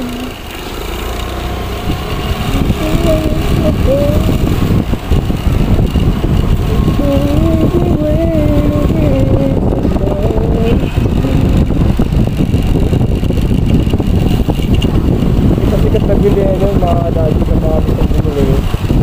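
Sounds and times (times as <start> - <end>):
motorcycle engine running: 0.0 - 19.0
wind buffeting helmet microphone: 0.0 - 19.0
wavering tone: 6.0 - 11.9.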